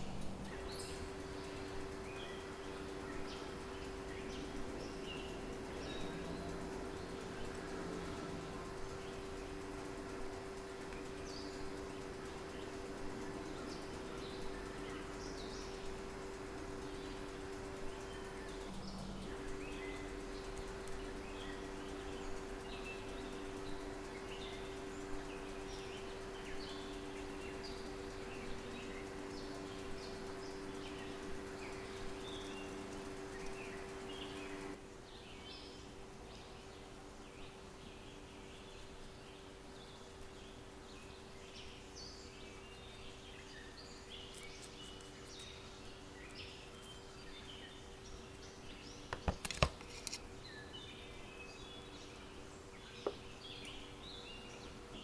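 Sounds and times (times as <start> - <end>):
small birds chirping: 0.0 - 55.0
steady hum: 0.0 - 55.0
sharp clicks or knocks: 49.1 - 50.2.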